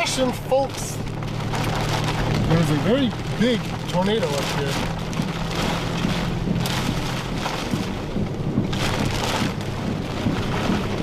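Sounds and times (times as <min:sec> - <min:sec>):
rain beating on vehicle: 0:00.0 - 0:11.0.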